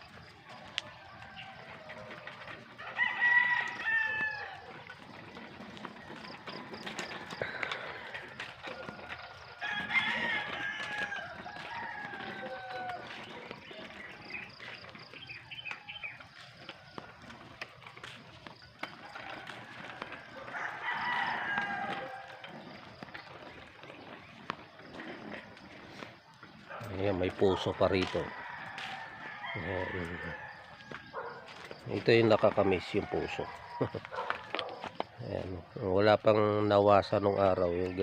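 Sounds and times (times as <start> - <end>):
rooster crowing: 0.5 - 14.4, 18.8 - 22.8, 27.0 - 34.8.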